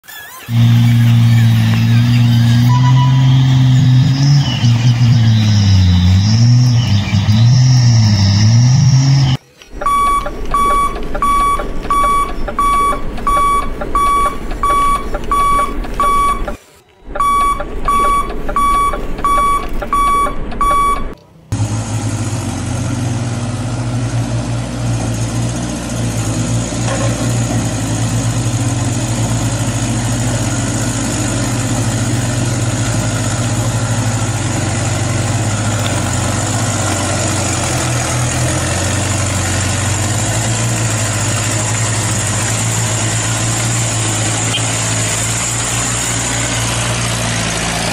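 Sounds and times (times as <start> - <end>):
simulated diesel engine idling: 0.3 - 5.6, 9.7 - 47.9
electronic reversing alarm beeping: 0.4 - 21.2.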